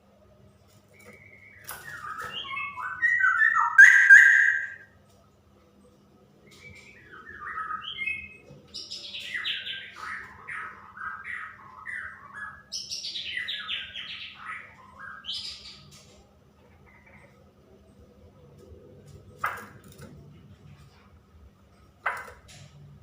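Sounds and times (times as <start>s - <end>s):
bird calling falling notes: 0.9s - 4.9s.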